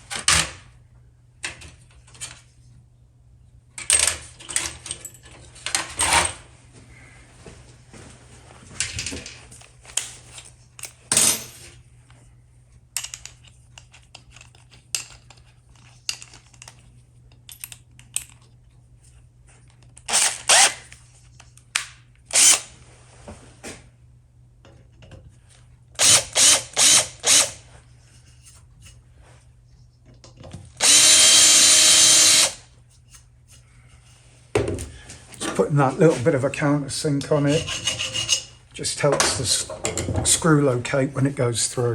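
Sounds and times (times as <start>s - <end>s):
power drill cutting metal: 20.1s - 20.8s, 22.3s - 22.7s, 26.0s - 27.6s, 30.8s - 32.6s.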